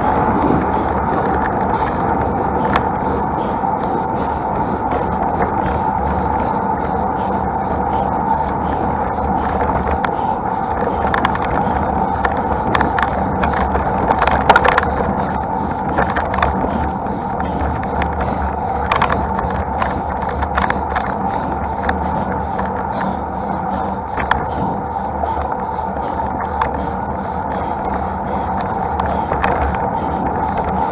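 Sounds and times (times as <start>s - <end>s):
wind rumble on microphone: 0.0s - 30.9s.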